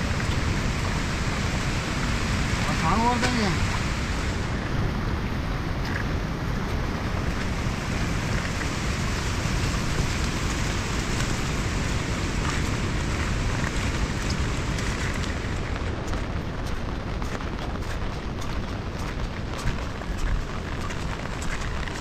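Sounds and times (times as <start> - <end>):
heavy rain hissing: 0.0 - 22.0
raindrop ticks: 0.1 - 1.0, 2.7 - 3.9, 9.6 - 22.0.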